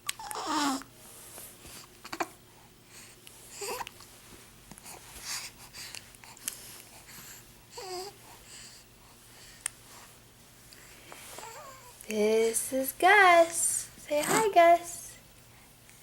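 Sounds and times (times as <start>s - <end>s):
baby snuffly breathing: 4.8s - 10.2s.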